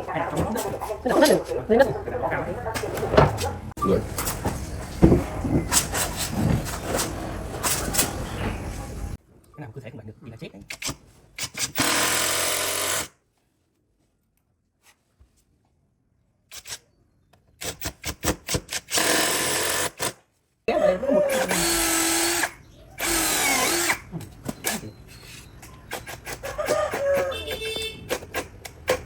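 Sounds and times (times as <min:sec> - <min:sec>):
power drill running in bursts: 0:11.8 - 0:13.1, 0:21.3 - 0:24.1.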